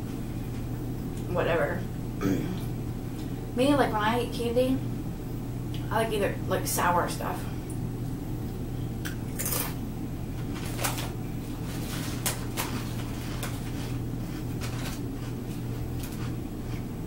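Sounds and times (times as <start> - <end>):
potato chip crunching: 9.2 - 9.8, 10.5 - 16.9.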